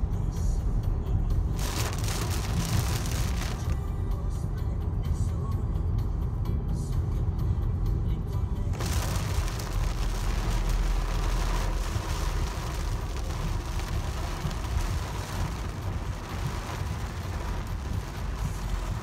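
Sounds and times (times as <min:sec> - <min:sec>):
car engine and road rumble: 0:00.0 - 0:19.0
rain hiss: 0:01.6 - 0:03.8, 0:08.8 - 0:19.0
wet tyres hissing: 0:01.6 - 0:03.8, 0:08.8 - 0:19.0.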